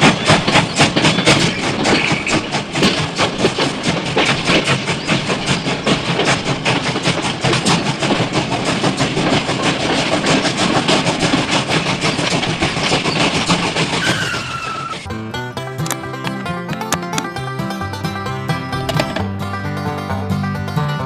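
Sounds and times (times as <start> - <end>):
dense clattering and rattling: 0.0 - 19.6
falling whistle-like tone: 14.0 - 15.1
banjo-style plucked music: 15.0 - 21.0.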